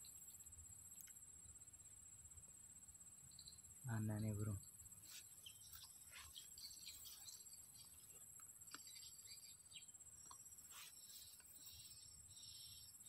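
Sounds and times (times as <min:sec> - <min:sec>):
high-pitched twittering chirps: 0:03.2 - 0:13.0.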